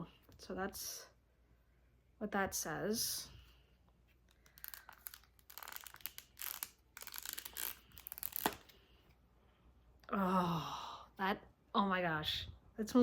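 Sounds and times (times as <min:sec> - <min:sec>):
plastic wrapping crinkling: 0:04.3 - 0:08.8
woman speaking: 0:10.1 - 0:13.0.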